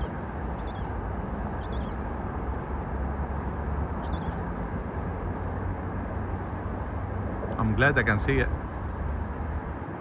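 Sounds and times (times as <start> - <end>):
bird chirping: 0.0 - 1.0, 1.6 - 2.0, 3.4 - 4.4
low outdoor rumble: 0.0 - 10.0.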